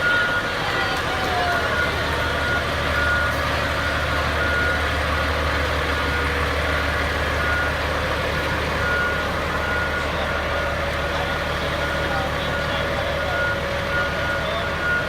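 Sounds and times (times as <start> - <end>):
electronic warning beeps: 0.0 - 5.3
fire truck engine idling: 0.0 - 15.0.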